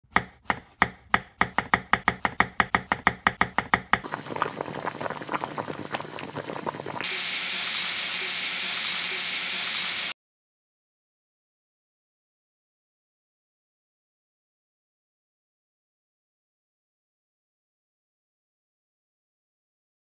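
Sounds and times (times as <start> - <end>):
rapid knife chopping: 0.0 - 4.1
food sizzling in frying: 3.9 - 10.2.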